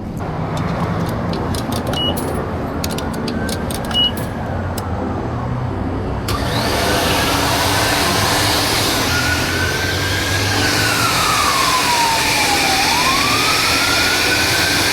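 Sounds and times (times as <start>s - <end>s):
short beeps: 4.0s - 4.2s
vacuum humming: 6.3s - 14.9s.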